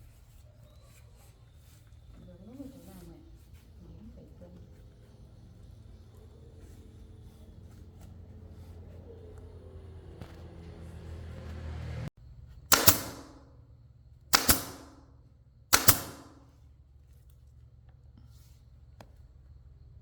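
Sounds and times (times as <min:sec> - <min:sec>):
sharp ringing bangs: 0:12.7 - 0:13.5, 0:14.3 - 0:15.1, 0:15.7 - 0:16.4.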